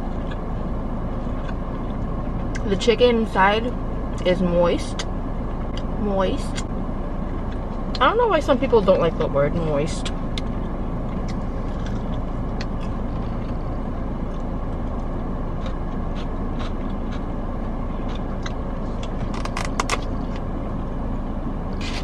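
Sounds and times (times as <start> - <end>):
car air conditioning running: 0.0 - 22.0.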